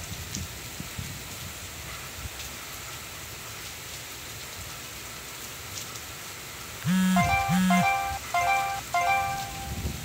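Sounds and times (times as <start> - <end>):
wind rumbling on microphone: 0.0 - 2.4.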